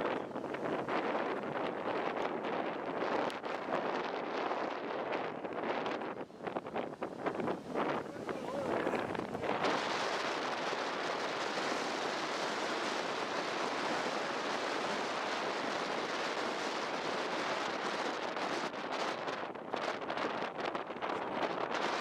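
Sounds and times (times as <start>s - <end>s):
wind buffeting microphone: 0.0s - 22.0s
ocean surf breaking: 5.7s - 18.5s.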